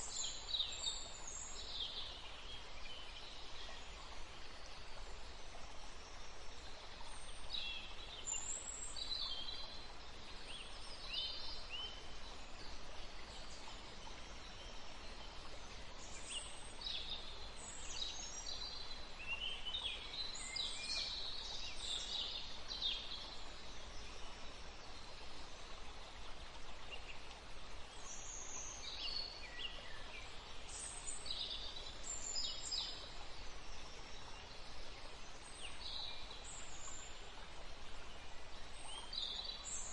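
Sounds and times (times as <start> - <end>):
outdoor background hiss: 0.0 - 39.9
small songbirds chirping: 0.0 - 39.9.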